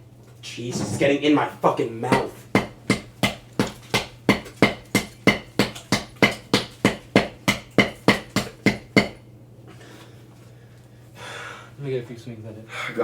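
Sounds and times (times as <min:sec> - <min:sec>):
hammer pounding concrete: 0:02.0 - 0:09.2.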